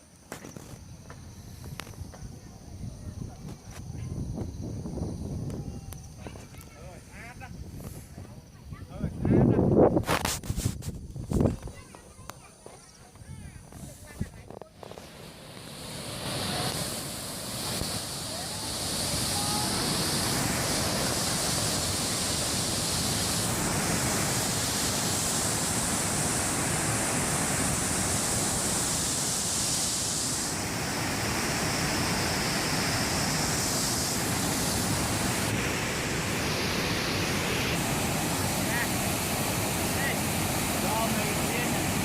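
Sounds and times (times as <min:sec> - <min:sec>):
waterfall rushing: 0:14.8 - 0:42.0.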